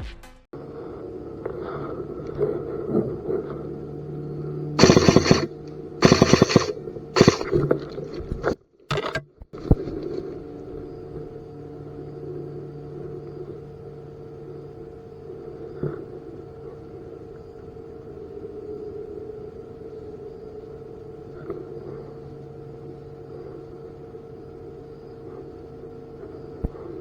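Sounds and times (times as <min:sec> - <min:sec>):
steady low hum: 0:00.6 - 0:27.0
full-auto airsoft gun bursts: 0:04.8 - 0:09.1.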